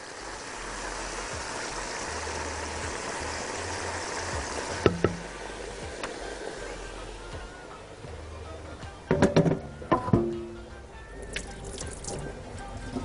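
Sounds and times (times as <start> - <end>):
paste sizzling in hot oil: 0.0 - 7.7.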